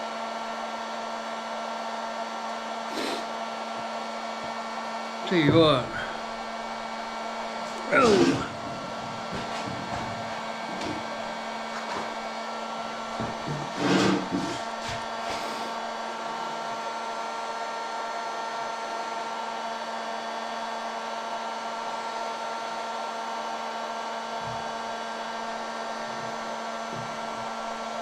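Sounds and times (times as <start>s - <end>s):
heat gun fan whirring: 2.6s - 18.2s.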